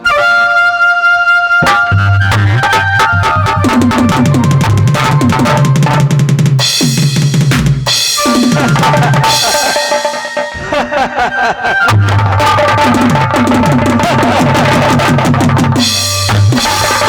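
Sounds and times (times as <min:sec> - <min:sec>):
stage accompaniment music: 0:00.0 - 0:17.0
drum kit fast beat: 0:02.5 - 0:10.6, 0:11.8 - 0:17.0.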